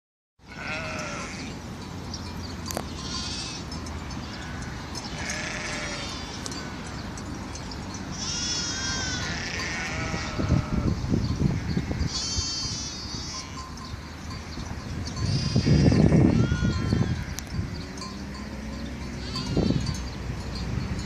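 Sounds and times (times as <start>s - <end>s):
sheep bleating: 0.5s - 1.5s, 3.0s - 6.8s, 8.2s - 11.0s, 15.3s - 17.4s.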